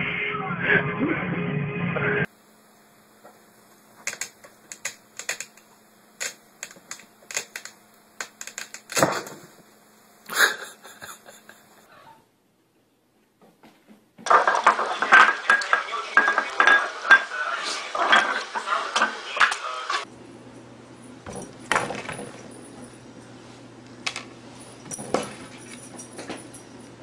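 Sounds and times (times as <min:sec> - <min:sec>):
glass bowl clattering on tiles: 0:14.3 - 0:17.3, 0:18.0 - 0:18.4.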